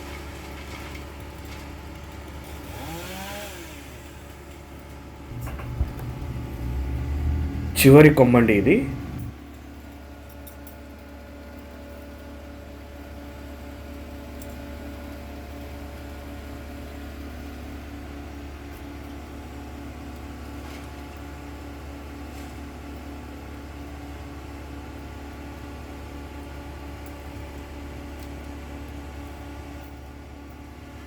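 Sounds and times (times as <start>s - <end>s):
heavy machine engine droning: 5.3s - 10.0s.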